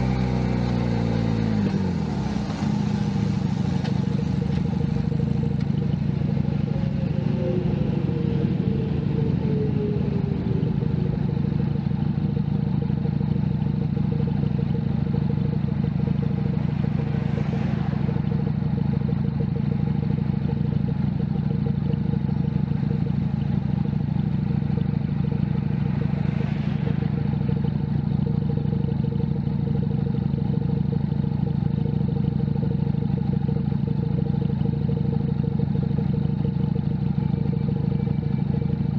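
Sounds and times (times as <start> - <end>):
motorcycle engine running: 0.0 - 38.9
falling tone: 5.1 - 13.5.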